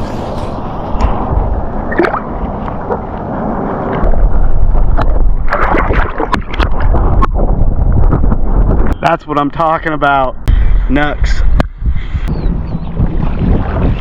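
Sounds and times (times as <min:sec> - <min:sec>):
water sloshing and gurgling: 0:00.0 - 0:08.9, 0:12.3 - 0:14.0
wind rumbling on microphone: 0:00.0 - 0:09.2, 0:09.9 - 0:14.0.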